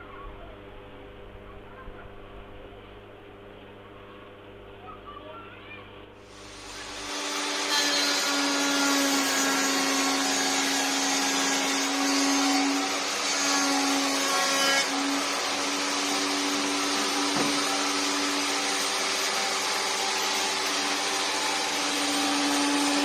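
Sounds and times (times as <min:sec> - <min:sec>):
table saw motor whining: 0:06.3 - 0:23.0.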